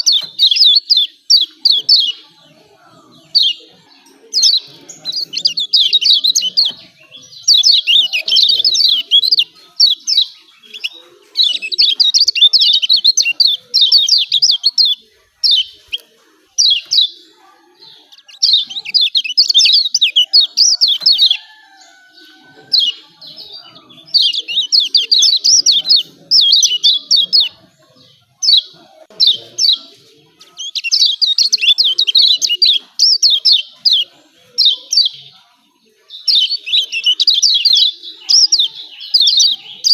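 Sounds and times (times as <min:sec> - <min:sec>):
bird calling in high chirps: 0:04.3 - 0:17.2.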